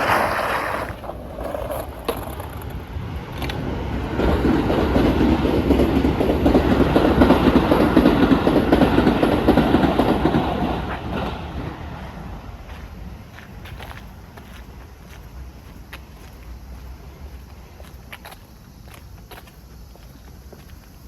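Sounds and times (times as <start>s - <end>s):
train passing: 0.0s - 21.0s.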